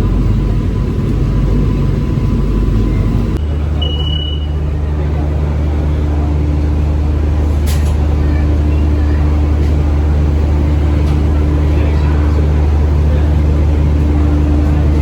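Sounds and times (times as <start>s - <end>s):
electric train rumbling: 0.0s - 15.0s
brief high tone: 3.7s - 4.8s.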